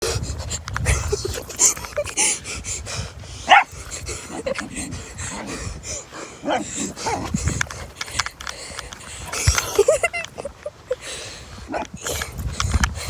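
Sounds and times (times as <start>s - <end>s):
puppy yipping: 3.5s - 3.7s.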